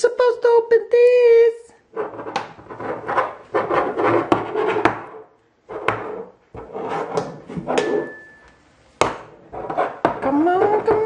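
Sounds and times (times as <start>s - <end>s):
scraping and knocking on container: 9.0s - 11.0s.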